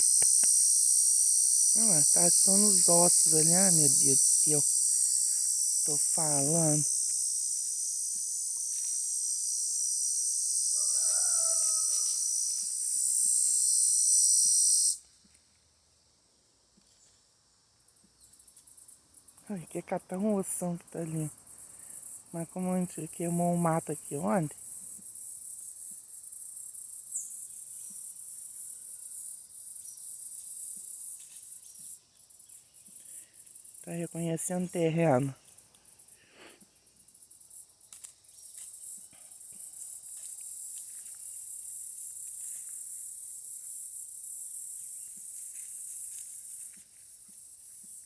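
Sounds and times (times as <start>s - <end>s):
insect chorus buzzing: 0.0s - 48.0s
drawn-out falling call: 10.7s - 12.8s.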